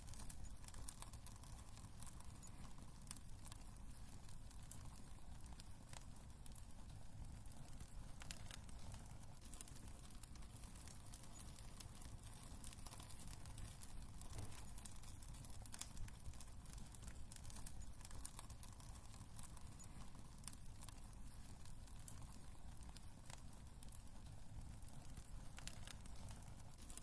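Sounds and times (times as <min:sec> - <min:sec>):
fire crackles and pops: 0:00.0 - 0:27.0
fire rumbling in fireplace: 0:00.0 - 0:27.0.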